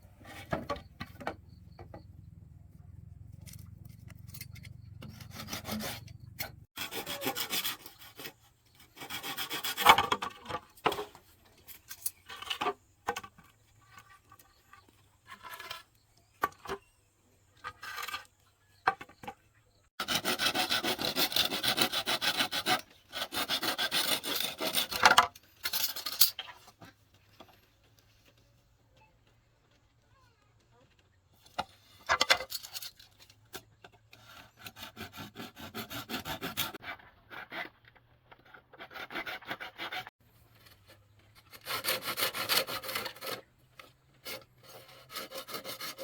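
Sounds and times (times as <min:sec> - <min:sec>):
hand tool rasping bamboo: 0:04.0 - 0:15.9, 0:20.0 - 0:26.3, 0:32.1 - 0:46.0.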